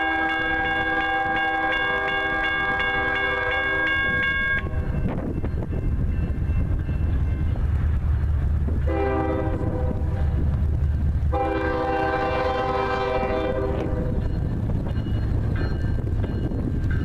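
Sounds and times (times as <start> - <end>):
diesel locomotive rumbling past: 0.0 - 17.0
multi-tone air horn: 11.4 - 14.0.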